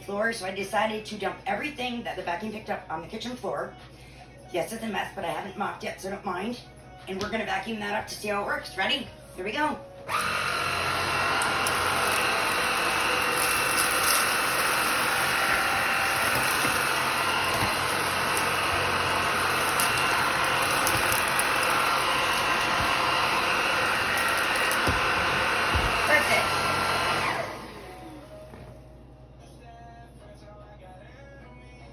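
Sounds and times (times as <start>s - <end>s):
stick vacuum motor whine: 10.0s - 28.7s.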